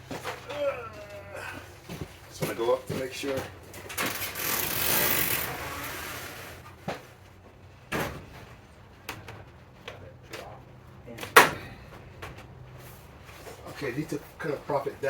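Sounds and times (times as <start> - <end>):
parts scraping and sliding: 3.9 - 7.1.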